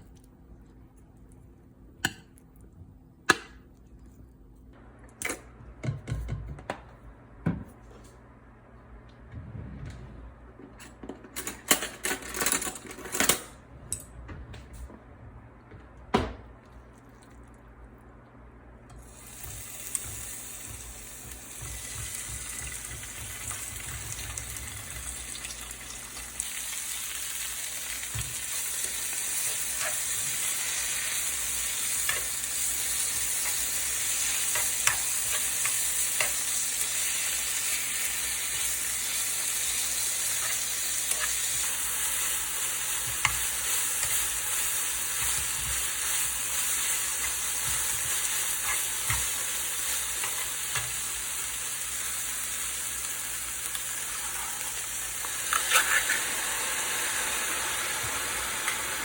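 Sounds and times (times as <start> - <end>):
food sizzling in a frying pan: 19.0 - 59.0.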